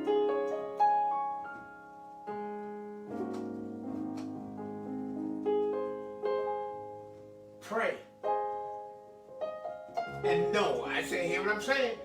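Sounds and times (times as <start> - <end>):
slow music of held chords: 8.2 - 12.0.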